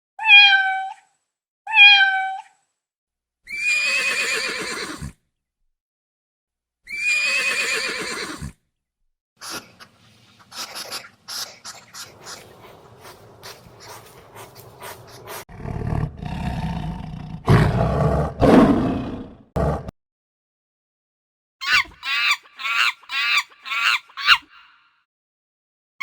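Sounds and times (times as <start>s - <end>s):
lion roaring and growling: 12.1s - 19.9s
high-pitched animal call: 21.6s - 24.8s.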